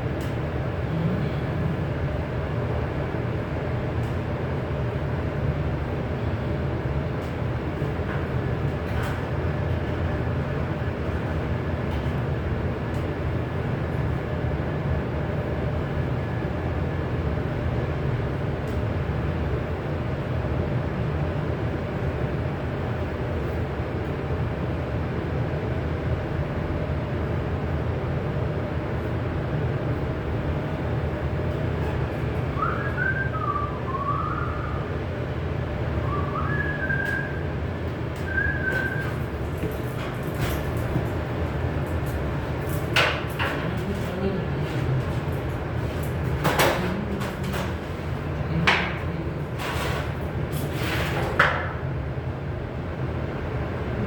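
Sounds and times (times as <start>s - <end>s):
steady low rumble: 0.0s - 4.6s
faint hum: 0.0s - 54.0s
low mechanical rumble: 0.0s - 54.0s
person whistling a tune: 32.6s - 34.8s, 36.0s - 37.5s, 38.2s - 39.1s.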